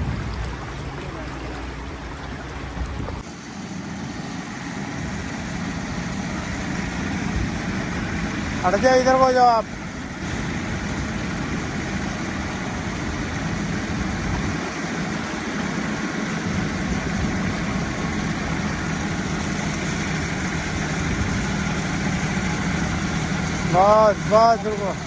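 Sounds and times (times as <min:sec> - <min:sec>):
tractor diesel engines straining: 0:00.8 - 0:25.0.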